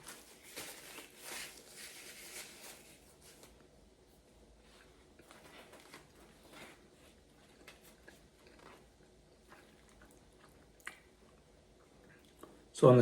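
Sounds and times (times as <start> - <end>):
person chewing food: 4.8 - 12.7.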